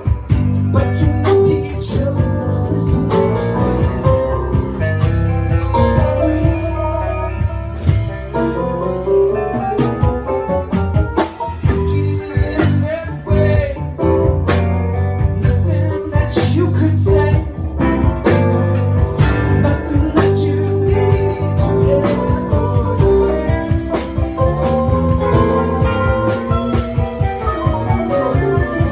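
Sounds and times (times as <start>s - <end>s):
person singing: 0.0s - 8.9s, 11.4s - 14.5s, 15.2s - 18.2s, 19.2s - 28.9s
guitar: 0.0s - 28.9s
live band playing: 0.0s - 28.9s
steady bass line: 0.0s - 28.9s.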